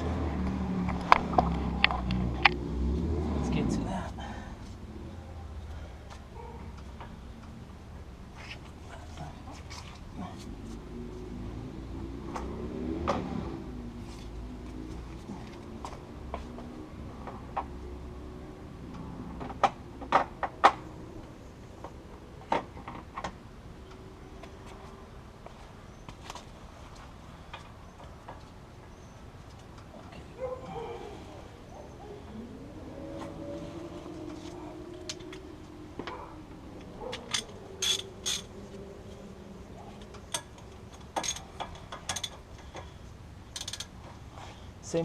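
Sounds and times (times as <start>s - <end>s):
hand tools clinking on metal: 37.0s - 38.6s, 40.0s - 42.9s.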